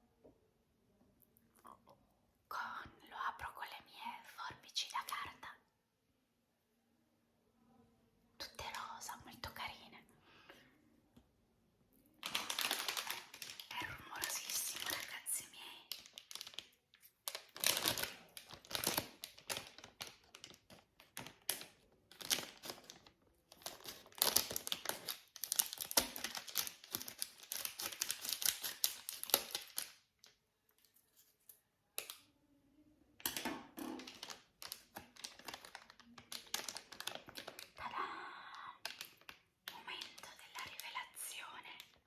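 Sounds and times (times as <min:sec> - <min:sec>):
plastic crinkling: 0:12.2 - 0:32.2, 0:33.2 - 0:38.0, 0:38.6 - 0:41.2.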